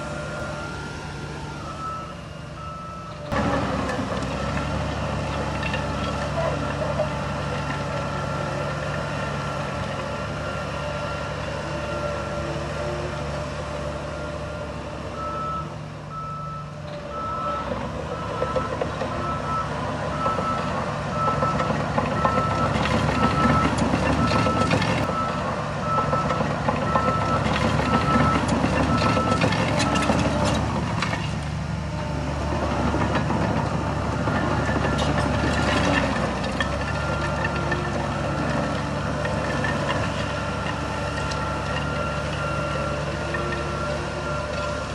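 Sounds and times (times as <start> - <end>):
reversing alarm beeping: 0.0 - 3.4, 14.0 - 30.3, 39.8 - 44.9
diesel engine running: 0.0 - 44.9.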